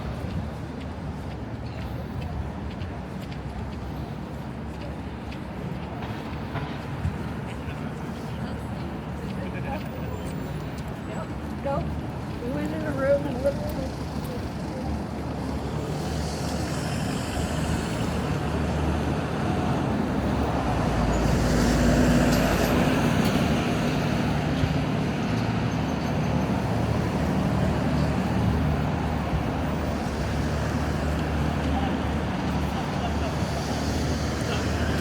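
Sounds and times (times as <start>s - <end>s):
road traffic: 0.0s - 35.0s
heavy vehicle passing: 13.8s - 35.0s.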